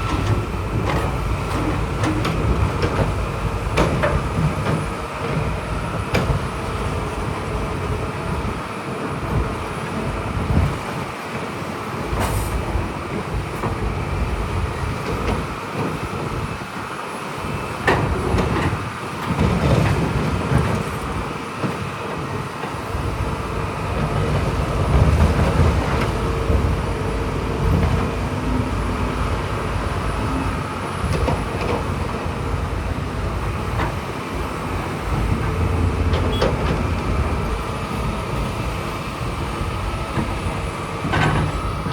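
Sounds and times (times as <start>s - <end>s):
diesel engine under load: 0.0s - 41.9s
machinery rattling: 23.0s - 41.9s.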